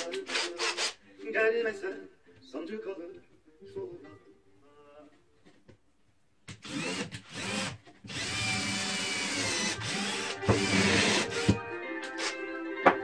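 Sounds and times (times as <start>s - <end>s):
power drill motor whining: 6.6s - 12.3s.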